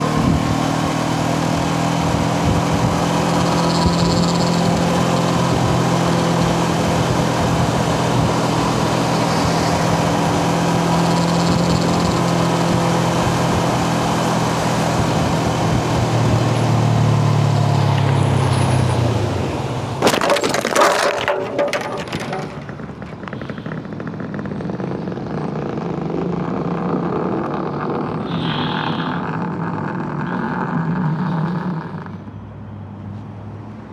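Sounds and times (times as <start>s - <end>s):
motorcycle engine running: 0.0s - 31.8s
traffic noise: 0.0s - 33.9s
crash with impacts and scraping: 20.0s - 23.8s.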